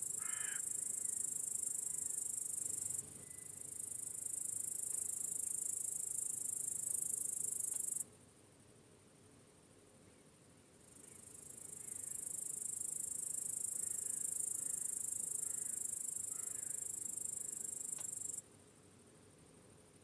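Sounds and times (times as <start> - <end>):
cricket trilling: 0.0 - 8.0, 10.9 - 18.4
insect chorus: 0.0 - 8.5, 10.8 - 18.8.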